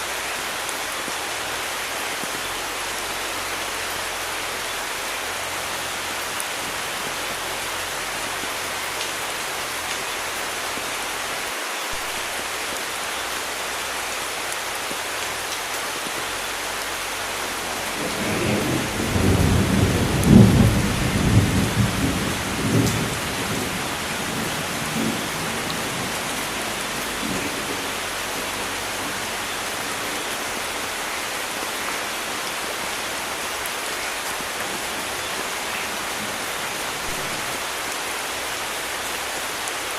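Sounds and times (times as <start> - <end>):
rain hissing: 0.0 - 39.9
rolling thunder: 17.9 - 29.2.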